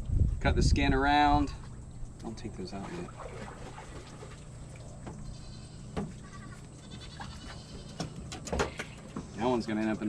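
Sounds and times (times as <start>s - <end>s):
goat bleating faintly: 5.2s - 8.2s.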